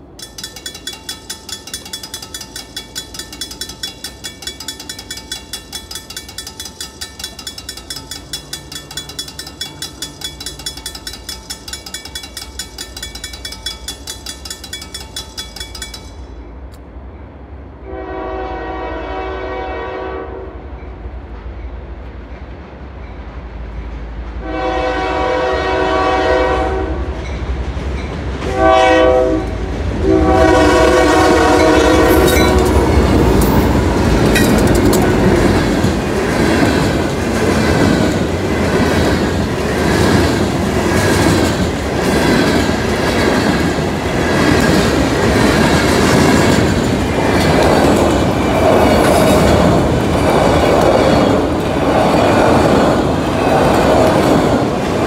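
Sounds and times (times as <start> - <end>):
wheels clattering over rail joints: 0.0 - 16.8, 31.2 - 55.0
train rumbling past: 0.0 - 55.0
train horn blasts: 17.8 - 20.6, 24.4 - 27.1, 28.4 - 33.8.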